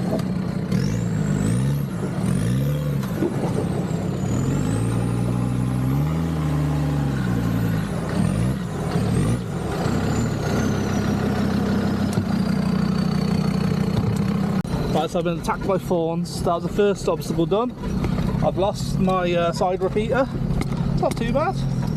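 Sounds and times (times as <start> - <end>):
diesel engine revving: 0.0 - 21.9
high engine whine: 0.0 - 21.9.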